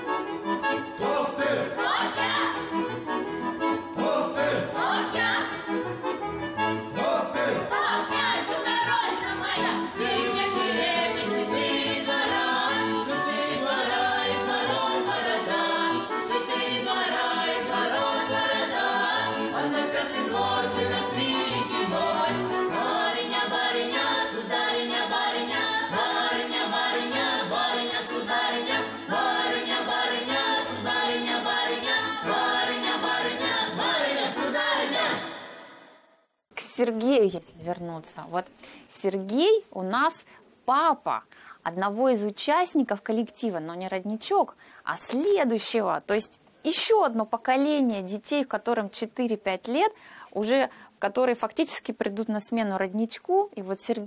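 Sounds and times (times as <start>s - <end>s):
accordion: 0.0s - 35.8s
group singing folk song: 0.0s - 36.0s.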